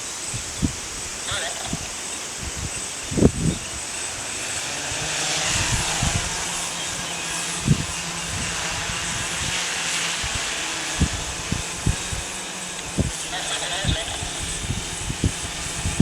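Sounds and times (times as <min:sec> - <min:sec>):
wind thumping on microphone: 0:00.0 - 0:03.8, 0:04.9 - 0:06.5, 0:10.2 - 0:16.0
drone propellers whirring: 0:00.0 - 0:16.0.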